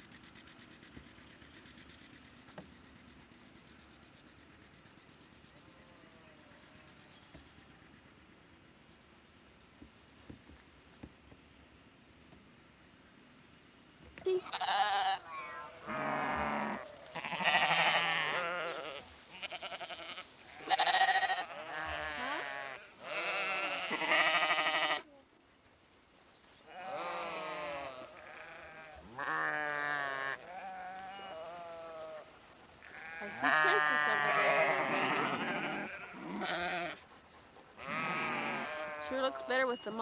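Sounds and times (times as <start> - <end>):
sheep bleating: 14.4 - 25.1, 26.7 - 32.3, 32.9 - 37.0, 37.8 - 39.7.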